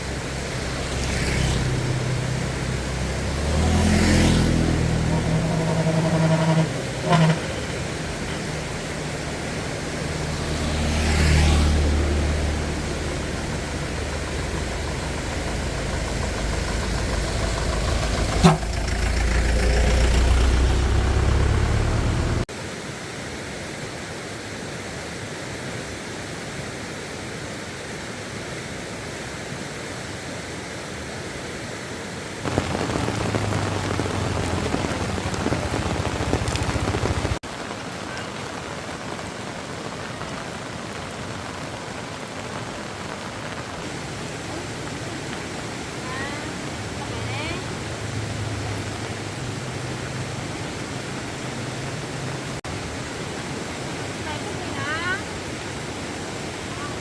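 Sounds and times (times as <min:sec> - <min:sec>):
low engine rumble: 0:00.0 - 0:22.5, 0:32.5 - 0:37.4
rain hissing: 0:00.0 - 0:22.5, 0:32.5 - 0:57.0.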